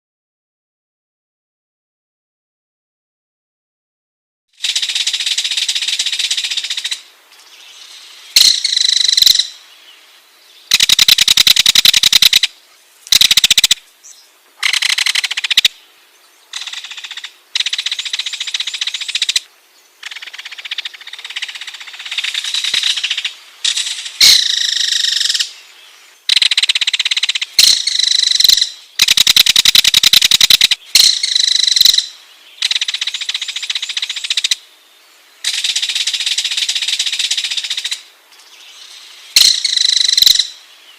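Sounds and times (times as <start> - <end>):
kingfisher rattling call: 10.7 - 12.5, 13.1 - 13.8, 14.6 - 15.7, 26.3 - 34.6, 39.4 - 40.5.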